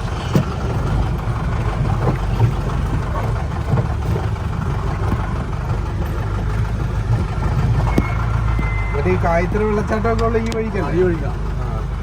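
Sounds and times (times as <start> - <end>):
vehicle jolting knocks: 0.0 - 9.2
jeep engine running: 0.0 - 12.0.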